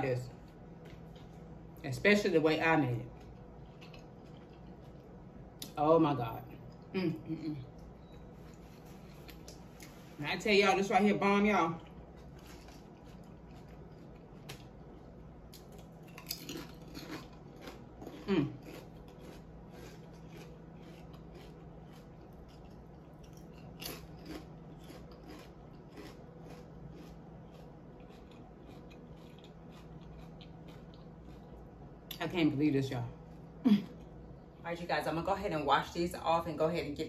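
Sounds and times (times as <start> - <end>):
chewing with small crunches: 0.3 - 1.8, 2.8 - 5.8, 7.6 - 10.0, 11.4 - 32.3.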